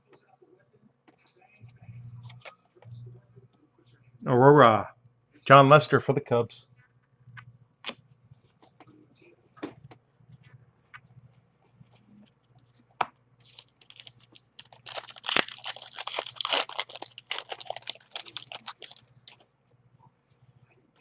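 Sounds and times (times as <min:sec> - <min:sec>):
wrapper tearing and crinkling: 0:13.4 - 0:19.4.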